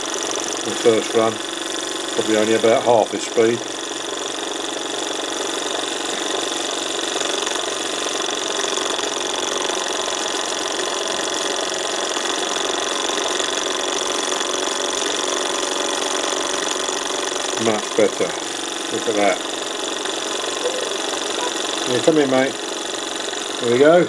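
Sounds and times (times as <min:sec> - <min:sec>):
gas burner hiss: 0:00.0 - 0:04.1, 0:16.8 - 0:24.0
hot air engine running: 0:00.0 - 0:24.0.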